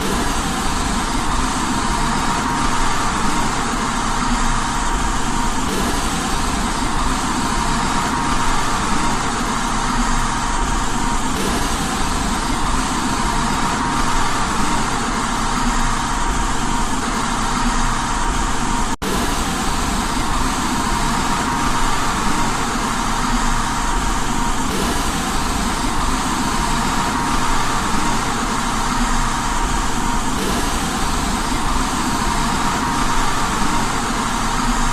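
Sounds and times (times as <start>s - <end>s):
white noise hiss: 0.0s - 34.9s.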